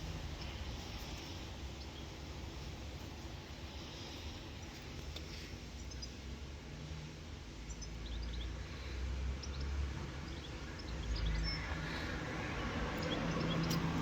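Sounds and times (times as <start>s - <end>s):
low steady rumble: 0.0s - 14.0s
birds chirping: 7.5s - 14.0s.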